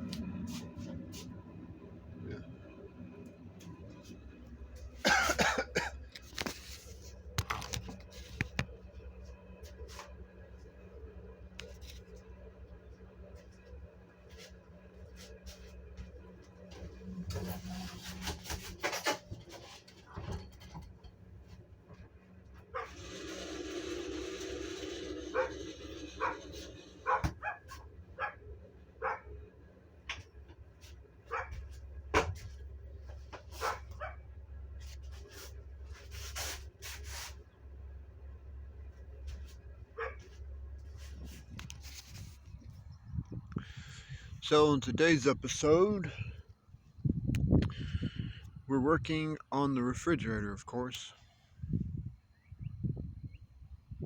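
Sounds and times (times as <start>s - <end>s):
low steady hum: 0.0s - 54.0s
dog barking: 22.8s - 23.0s, 25.3s - 25.6s, 27.0s - 28.4s, 29.0s - 29.3s, 31.3s - 31.6s, 33.6s - 34.2s, 40.0s - 40.3s.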